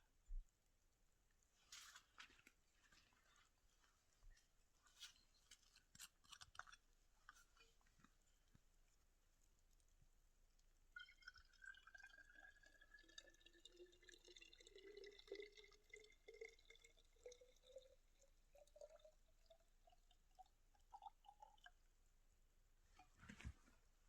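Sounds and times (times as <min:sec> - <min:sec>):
water pouring into a cup: 0:11.0 - 0:21.8.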